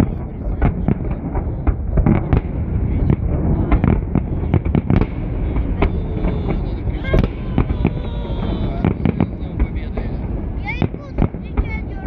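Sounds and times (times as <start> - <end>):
continuous low rumble: 0.0 - 12.0.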